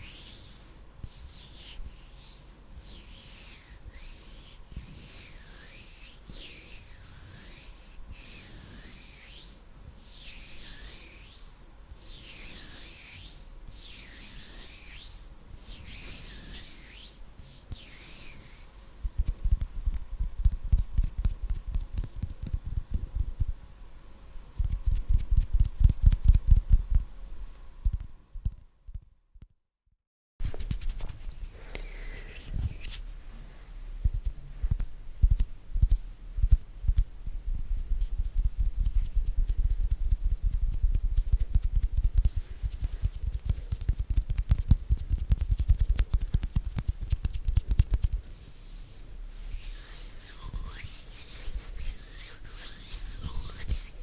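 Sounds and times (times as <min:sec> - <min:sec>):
hands rubbing together: 0:00.0 - 0:18.7, 0:30.4 - 0:33.2, 0:38.0 - 0:54.0
hands fluttering at microphone: 0:24.6 - 0:27.1, 0:34.0 - 0:54.0.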